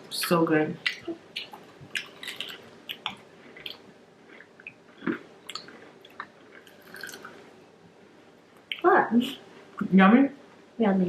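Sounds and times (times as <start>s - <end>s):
person chewing onion rings: 0.8s - 7.6s.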